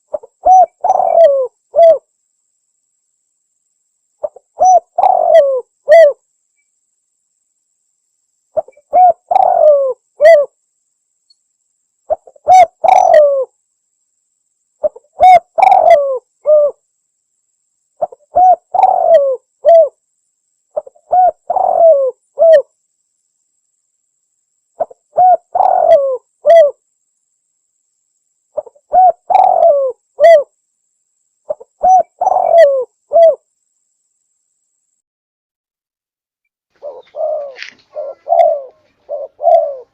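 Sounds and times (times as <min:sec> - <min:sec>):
dove cooing: 0:00.0 - 0:02.1, 0:04.2 - 0:06.2, 0:08.6 - 0:10.6, 0:12.1 - 0:13.5, 0:14.8 - 0:16.8, 0:18.0 - 0:20.0, 0:20.8 - 0:22.7, 0:24.8 - 0:26.8, 0:28.6 - 0:30.5, 0:31.5 - 0:33.4, 0:36.8 - 0:39.9.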